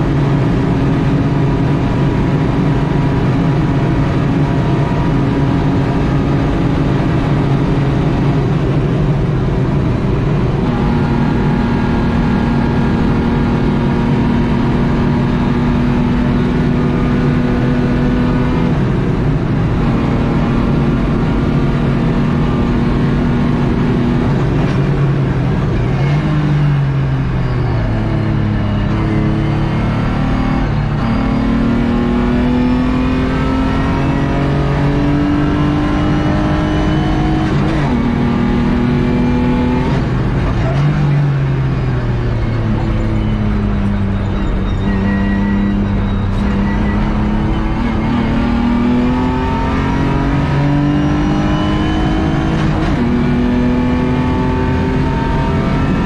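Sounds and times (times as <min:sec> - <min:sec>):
car engine at high revs: 0:00.0 - 0:56.0
road and wind noise: 0:00.0 - 0:56.0.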